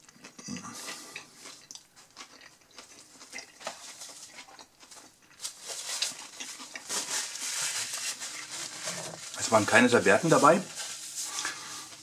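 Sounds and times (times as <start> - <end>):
person chewing food: 0.0 - 9.3
rustling: 1.4 - 12.0.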